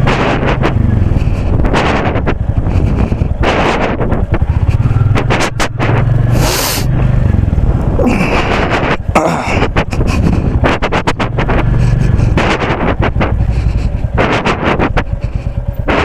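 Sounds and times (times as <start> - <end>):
motorcycle engine rumbling: 0.0 - 16.0
short hiss: 6.4 - 6.9.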